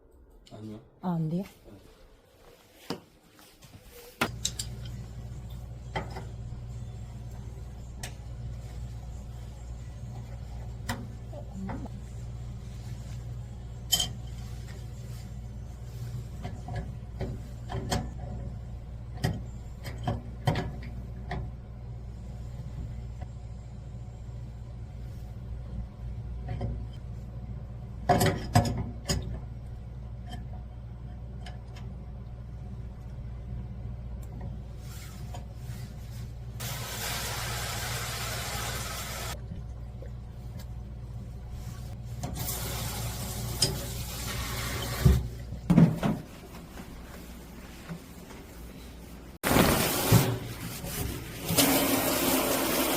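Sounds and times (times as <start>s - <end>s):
steady low hum: 3.8s - 36.6s.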